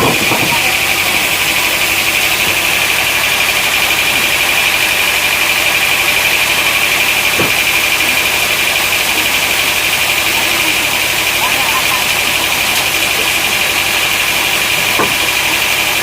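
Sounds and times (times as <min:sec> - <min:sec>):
sawmill machinery whine: 0:00.0 - 0:16.0.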